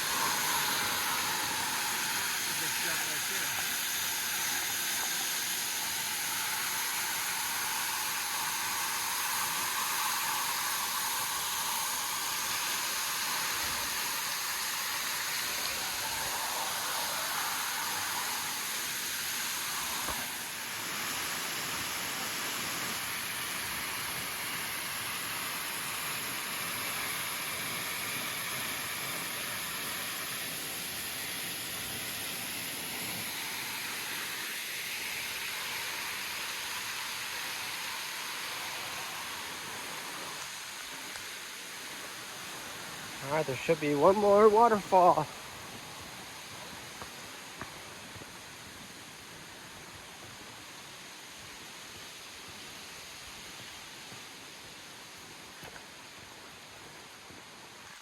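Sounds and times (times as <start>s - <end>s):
waterfall rushing: 0.0s - 25.4s, 32.0s - 46.9s.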